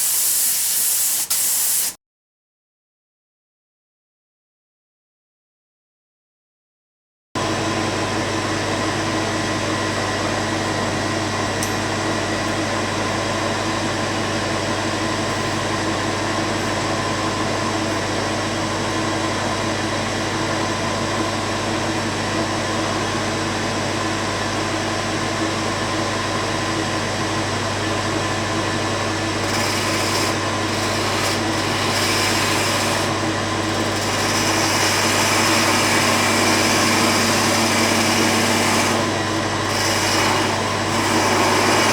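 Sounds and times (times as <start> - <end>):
high hiss: 0.0 - 2.0
power tool motor whine: 29.3 - 41.9.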